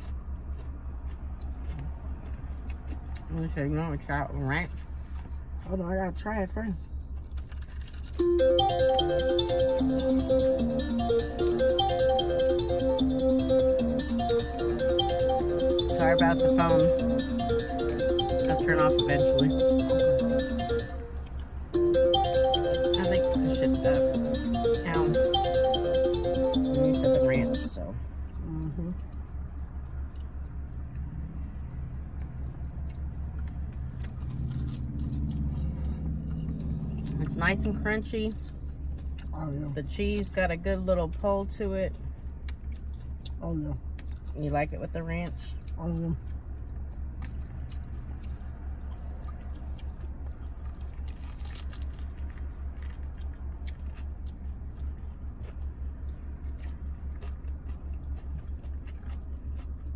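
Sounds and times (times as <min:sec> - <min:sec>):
chewing crunchy food: 0:00.0 - 0:03.6, 0:06.8 - 0:08.3, 0:28.2 - 0:37.4, 0:38.3 - 0:39.4, 0:40.0 - 0:44.5, 0:45.2 - 0:59.9
steady low hum: 0:00.0 - 0:59.9
car engine idling: 0:03.4 - 0:59.9.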